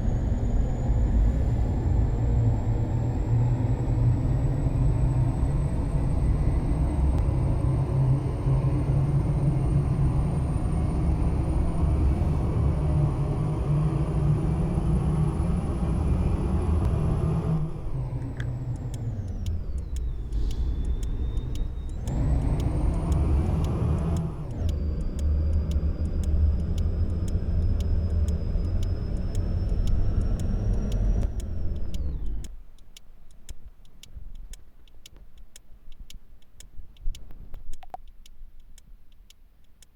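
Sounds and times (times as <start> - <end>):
truck diesel engine whining: 0.0 - 32.5
regular light ticking: 16.8 - 39.9.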